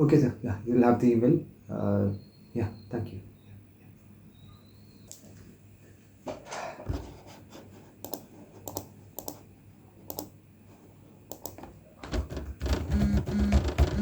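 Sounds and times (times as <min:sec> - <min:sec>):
laptop keyboard typing: 0:08.0 - 0:09.5, 0:10.1 - 0:10.3, 0:11.3 - 0:14.0.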